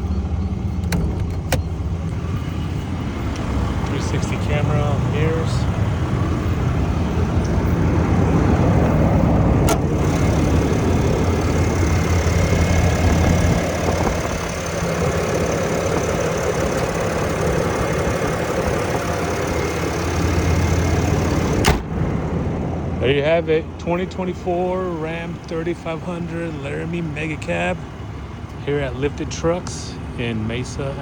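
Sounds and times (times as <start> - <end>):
pickup truck engine idling: 0.0 - 31.0
sharp click: 21.6 - 21.9.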